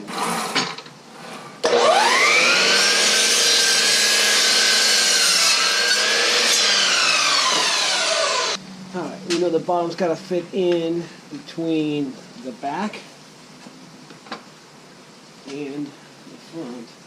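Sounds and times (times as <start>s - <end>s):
electric saw cutting wood: 0.0s - 0.7s, 1.6s - 8.6s.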